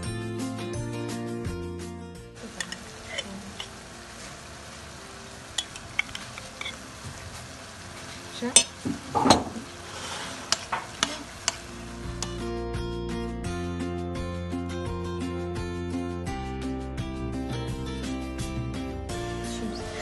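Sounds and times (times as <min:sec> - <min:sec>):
music: 0:00.0 - 0:04.1, 0:04.8 - 0:20.0
meat sizzling in a pan: 0:02.4 - 0:12.4
spatula scraping a pan: 0:02.5 - 0:04.5, 0:09.5 - 0:12.4.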